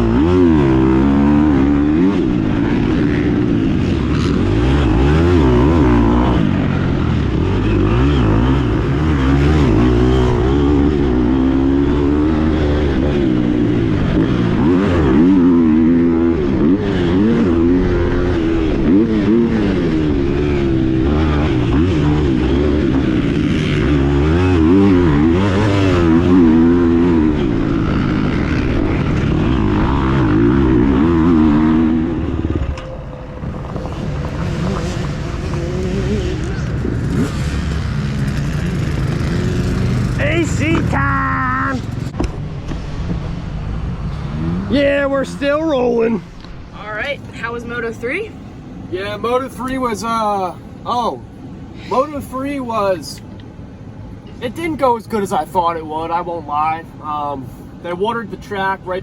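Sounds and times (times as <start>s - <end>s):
motocross bike engine revving: 0.0s - 42.2s.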